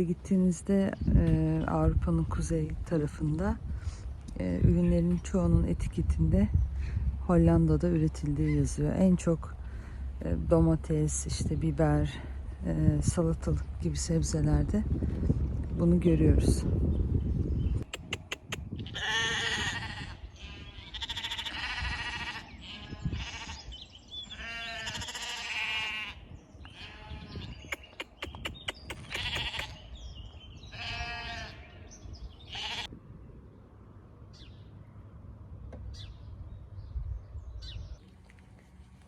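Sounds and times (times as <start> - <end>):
sheep bleating: 18.8 - 23.7, 24.3 - 27.3, 28.9 - 29.8, 30.7 - 31.8, 32.5 - 32.9.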